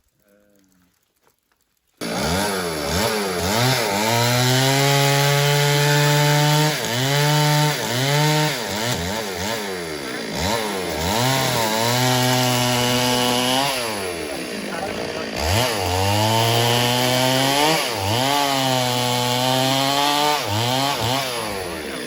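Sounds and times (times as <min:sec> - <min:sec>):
chainsaw revving: 0:02.0 - 0:22.0.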